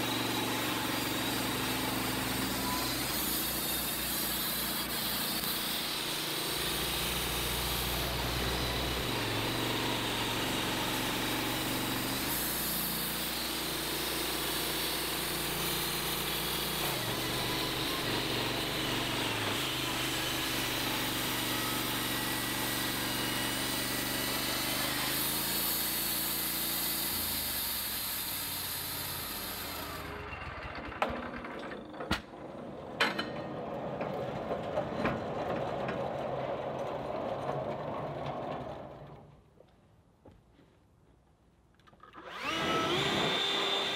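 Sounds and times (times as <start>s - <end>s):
band saw cutting log: 0.0s - 31.2s, 42.0s - 43.9s.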